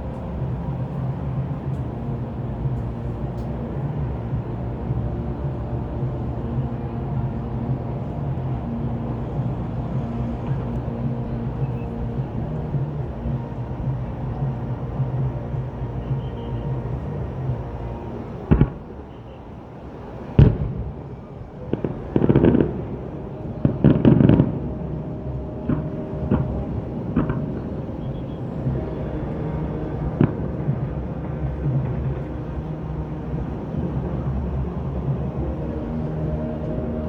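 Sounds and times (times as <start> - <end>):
steady background rumble: 0.0 - 37.0
fireworks bursting: 20.4 - 35.9.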